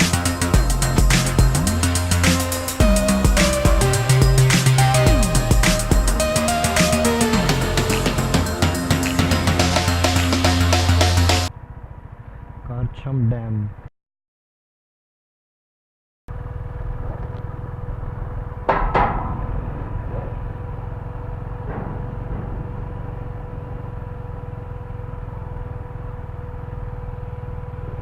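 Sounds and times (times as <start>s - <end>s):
motorcycle rumble: 0.0s - 13.9s, 16.3s - 28.0s
sharp knocks: 18.7s - 20.4s.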